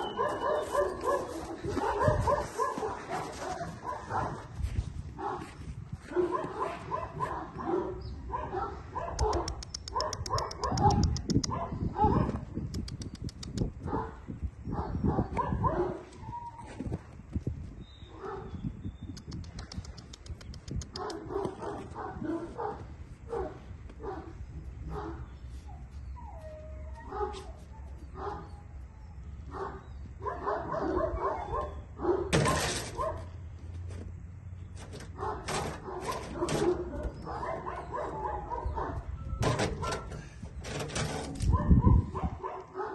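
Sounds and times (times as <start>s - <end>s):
puppy yipping and whimpering: 16.2s - 16.8s, 25.6s - 29.2s.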